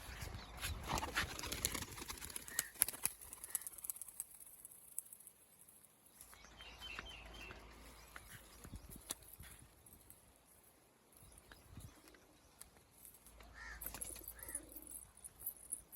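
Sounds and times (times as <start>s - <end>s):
pigeon wings flapping: 0.8s - 5.0s.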